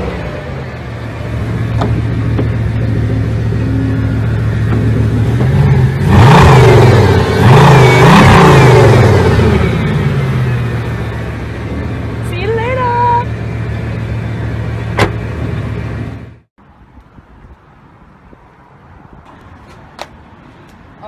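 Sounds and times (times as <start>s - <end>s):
car engine idling and revving: 0.0s - 16.5s.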